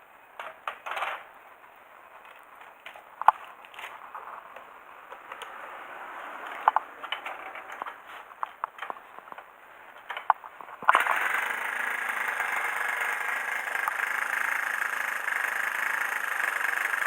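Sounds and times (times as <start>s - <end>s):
mechanical clicks and scrapes: 10.2s - 14.8s
single-cylinder engine running: 10.9s - 17.0s.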